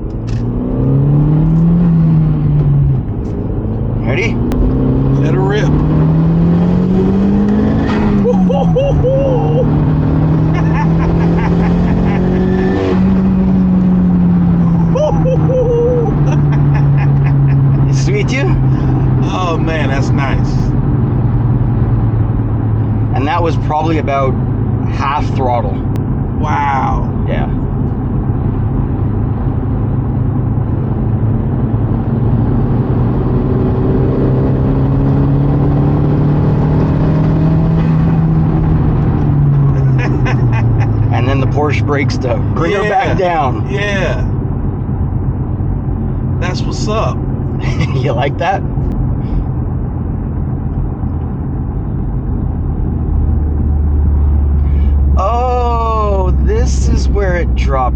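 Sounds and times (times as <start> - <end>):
road rumble: 0.0 - 57.9
turbo car engine accelerating: 0.0 - 57.9
person exclaiming: 8.2 - 9.8, 10.4 - 12.6, 14.6 - 20.4, 42.4 - 44.3, 46.8 - 48.6, 55.2 - 57.1.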